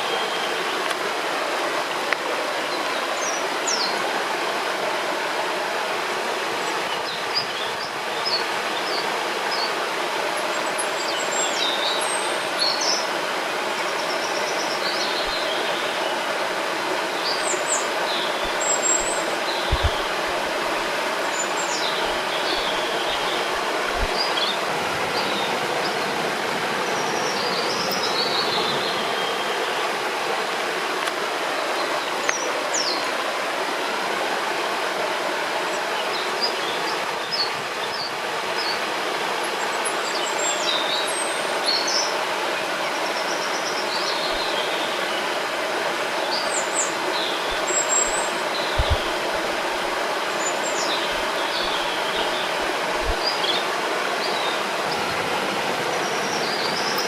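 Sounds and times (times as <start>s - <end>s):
river water rushing: 0.0s - 57.0s
small birds chirping: 17.2s - 26.0s, 46.2s - 55.1s.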